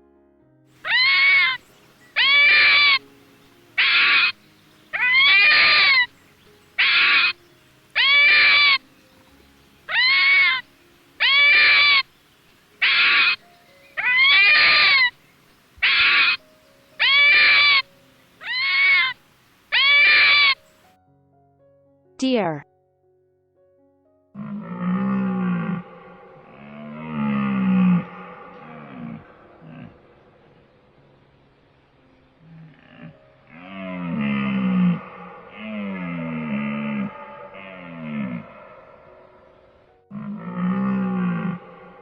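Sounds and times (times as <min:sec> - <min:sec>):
fox calling: 0:00.8 - 0:03.1, 0:03.8 - 0:06.2, 0:06.8 - 0:07.4, 0:08.0 - 0:08.9, 0:09.9 - 0:12.1, 0:12.8 - 0:15.2, 0:15.8 - 0:16.4, 0:17.0 - 0:20.6.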